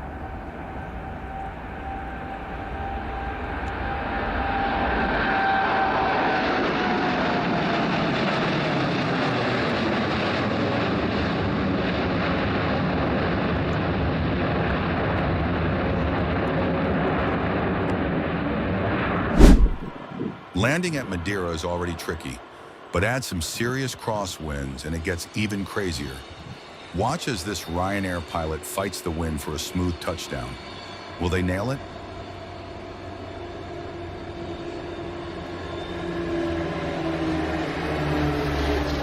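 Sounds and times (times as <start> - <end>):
jet engines roaring: 0.1 - 39.0
high engine whine: 24.0 - 39.0.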